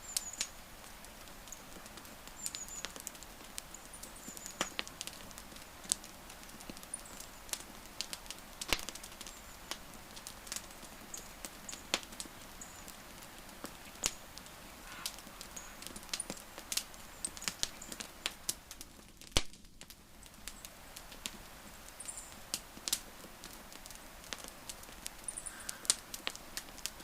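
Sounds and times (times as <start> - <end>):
wood fire crackling: 0.0 - 27.0
faint high chirps: 14.8 - 15.8.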